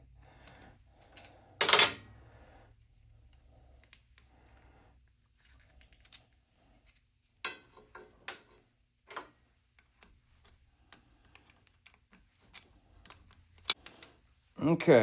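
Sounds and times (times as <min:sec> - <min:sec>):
metal tools clinking: 0:01.1 - 0:02.0.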